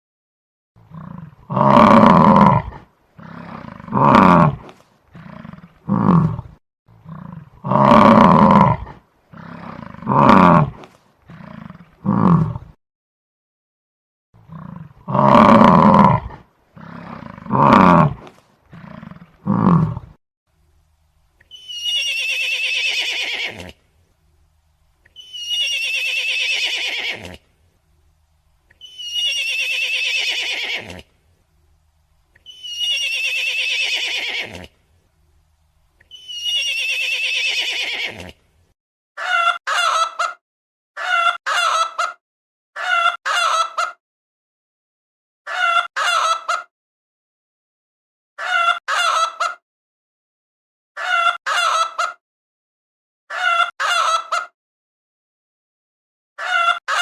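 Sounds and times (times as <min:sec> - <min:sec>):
large animal roaring: 0:00.8 - 0:12.8, 0:14.4 - 0:20.2
horse whinnying: 0:00.9 - 0:12.8, 0:21.5 - 0:23.8, 0:25.1 - 0:27.5, 0:28.7 - 0:31.1, 0:32.4 - 0:34.8, 0:36.1 - 0:38.4
low grunt: 0:05.2 - 0:12.8, 0:14.4 - 0:20.2.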